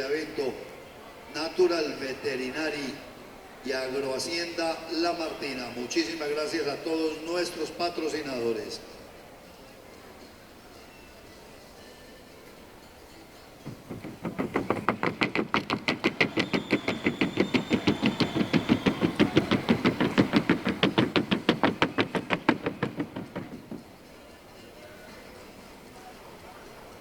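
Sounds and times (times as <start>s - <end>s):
hooves striking a wooden board: 13.7s - 24.0s.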